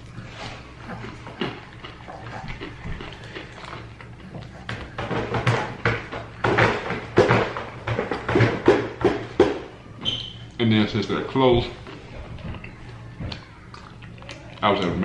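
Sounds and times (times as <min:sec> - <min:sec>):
crunchy fried chicken chewing: 0:00.0 - 0:05.8, 0:11.7 - 0:15.0.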